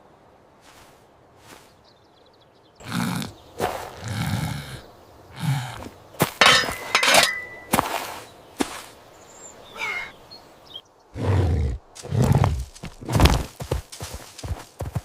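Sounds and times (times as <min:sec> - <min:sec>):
low growling: 0:02.8 - 0:06.0.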